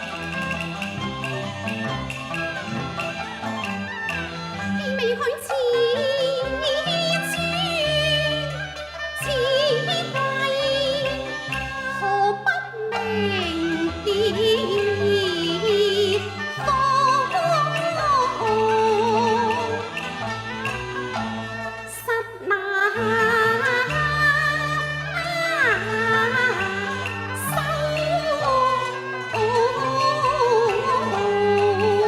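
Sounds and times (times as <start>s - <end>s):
traditional instrumental accompaniment: 0.0s - 32.0s
opera singing with vibrato: 4.8s - 8.5s, 9.2s - 19.9s, 21.9s - 32.0s.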